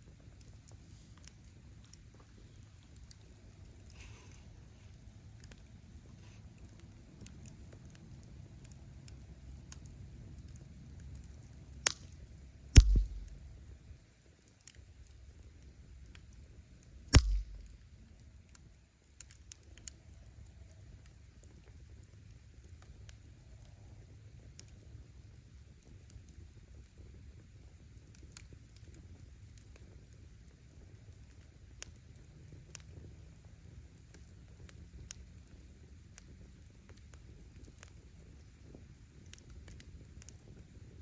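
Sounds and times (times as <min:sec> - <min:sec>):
wood fire rumbling: 0:00.0 - 0:14.0, 0:14.6 - 0:18.0
fire crackling: 0:00.0 - 0:41.0
firewood popping loudly: 0:11.8 - 0:12.2, 0:12.8 - 0:13.6, 0:17.1 - 0:17.9.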